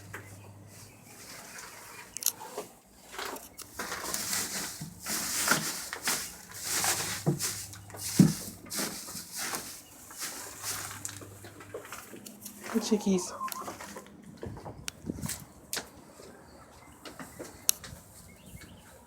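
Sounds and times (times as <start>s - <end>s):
dry hay rustling: 0.0s - 14.4s.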